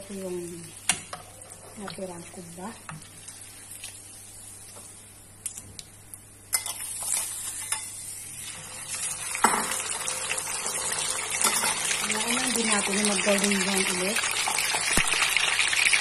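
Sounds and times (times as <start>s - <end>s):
food deep-frying in hot oil: 0.0s - 16.0s.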